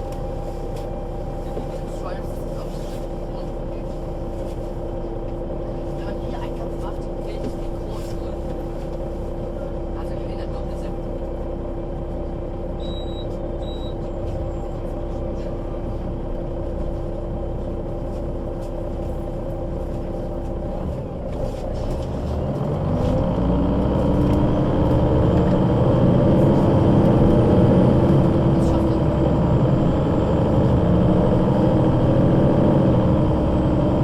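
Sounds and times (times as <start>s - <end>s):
bus engine: 0.0s - 34.0s
short high beeps: 12.8s - 14.0s.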